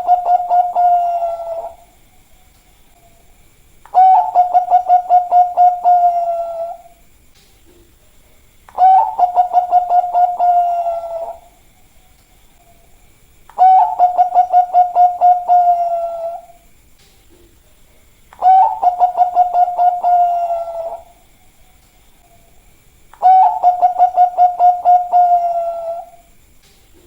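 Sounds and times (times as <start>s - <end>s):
dove cooing: 0.0s - 2.0s, 3.9s - 7.0s, 8.7s - 11.6s, 13.5s - 16.6s, 18.4s - 21.3s, 23.2s - 26.3s.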